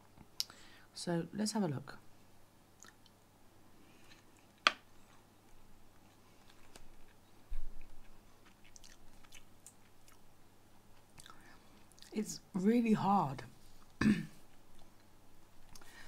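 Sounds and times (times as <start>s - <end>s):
person chewing food: 2.8s - 3.2s, 3.9s - 12.1s, 13.8s - 15.9s.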